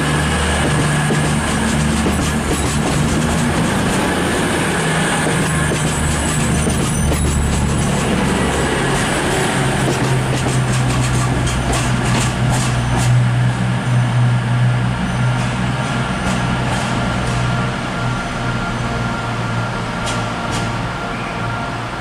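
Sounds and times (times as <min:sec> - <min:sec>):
train low drone: 0:00.0 - 0:22.0.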